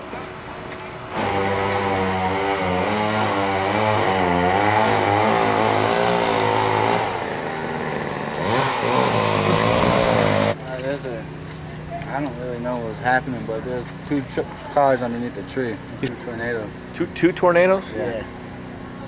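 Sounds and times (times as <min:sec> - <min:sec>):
small gasoline engine revving: 0:01.1 - 0:10.6.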